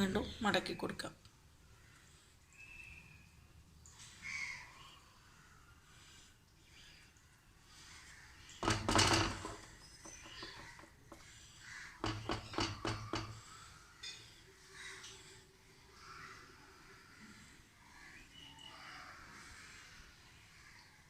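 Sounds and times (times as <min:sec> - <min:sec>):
kitchenware clattering: 0:08.6 - 0:11.3, 0:12.0 - 0:13.4
light knocks: 0:08.6 - 0:11.3, 0:12.0 - 0:13.5.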